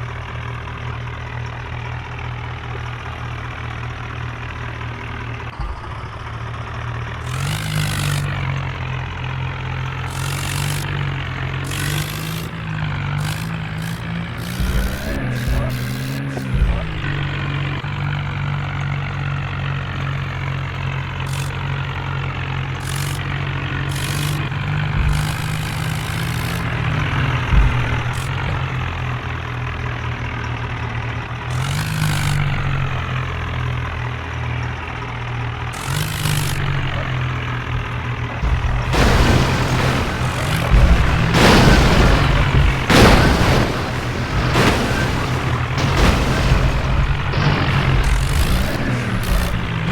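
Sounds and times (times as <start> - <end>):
tractor engine running: 0.0 - 49.9
loud rough noise: 5.4 - 9.1, 10.0 - 17.8, 22.8 - 28.8, 37.9 - 49.9.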